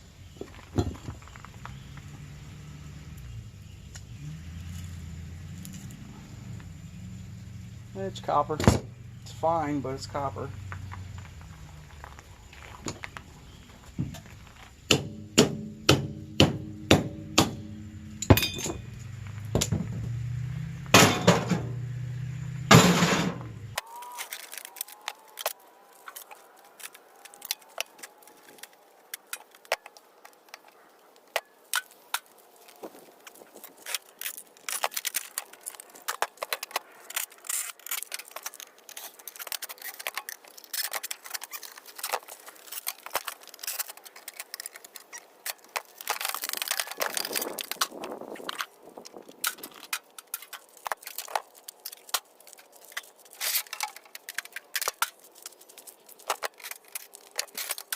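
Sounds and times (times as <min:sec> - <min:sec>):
hard metal blows: 0:14.9 - 0:20.2, 0:20.8 - 0:21.9, 0:22.6 - 0:23.8
light metallic clicks and clinks: 0:18.2 - 0:18.9.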